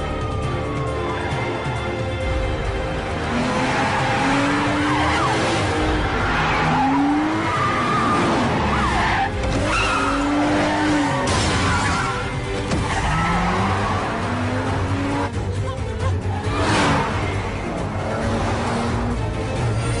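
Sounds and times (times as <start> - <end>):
car engine revving: 2.7 - 20.0
tyres squealing: 3.6 - 14.7.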